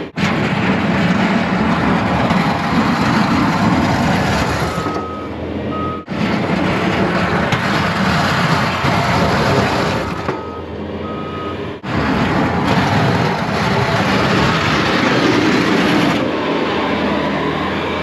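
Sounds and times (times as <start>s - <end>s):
snow plow truck engine rumbling: 0.0s - 18.0s
reversing alarm beeps: 4.6s - 6.1s, 9.8s - 11.8s.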